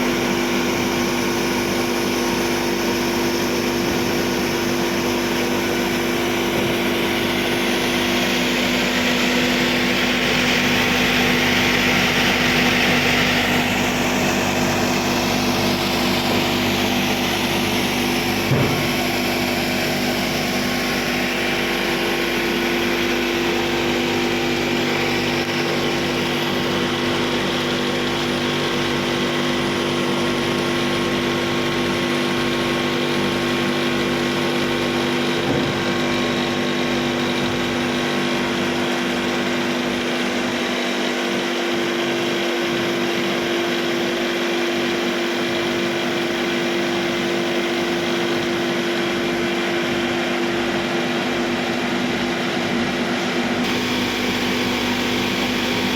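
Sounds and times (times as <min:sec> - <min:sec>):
machine hum with low tones: 0:00.0 - 0:44.2.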